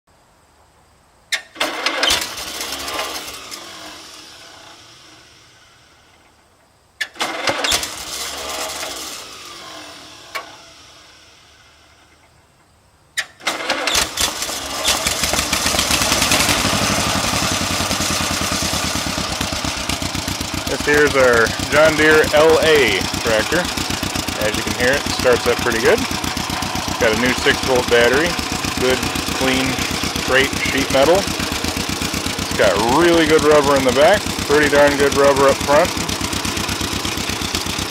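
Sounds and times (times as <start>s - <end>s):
tractor engine starting and running: 1.3s - 37.9s.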